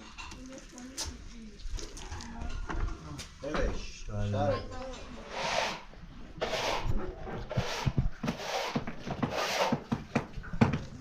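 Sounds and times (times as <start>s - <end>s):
hand saw cutting wood: 5.2s - 10.0s.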